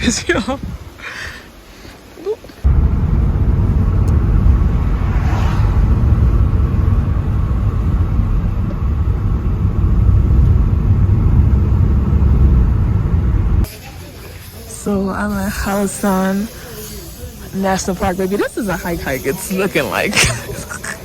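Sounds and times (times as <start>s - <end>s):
car rumbling on the move: 2.7s - 13.7s.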